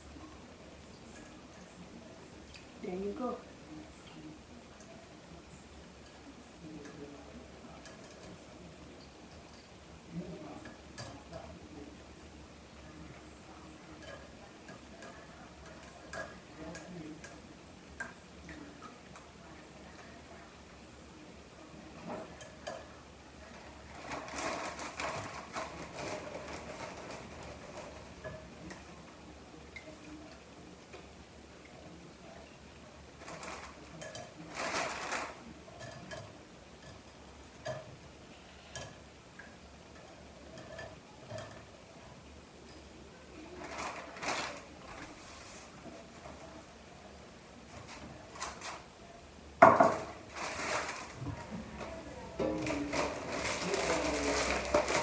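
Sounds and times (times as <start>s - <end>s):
faint low hum: 51.2s - 55.0s.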